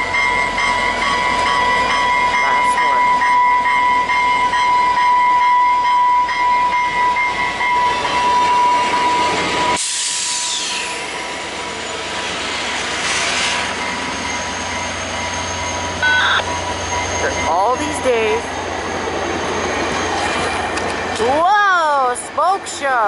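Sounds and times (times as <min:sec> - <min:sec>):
passenger train running past: 0:00.0 - 0:23.0
steady high tone: 0:13.7 - 0:20.2.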